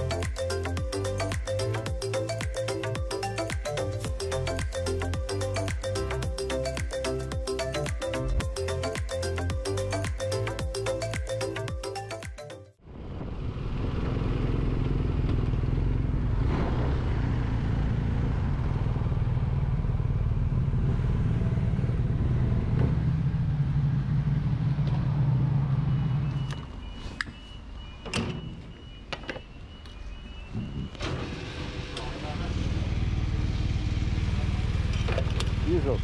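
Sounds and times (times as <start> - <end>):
motorcycle engine running: 32.3 - 36.0.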